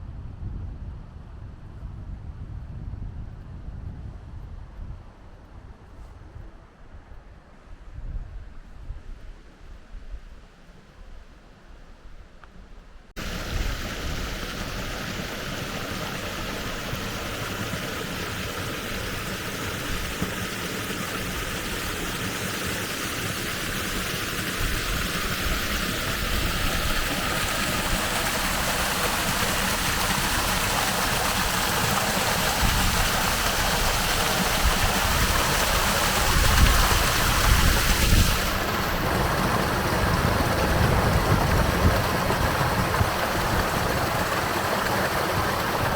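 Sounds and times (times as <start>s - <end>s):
wind buffeting microphone: 0.0s - 7.2s, 13.2s - 45.9s
river water rushing: 13.2s - 45.9s.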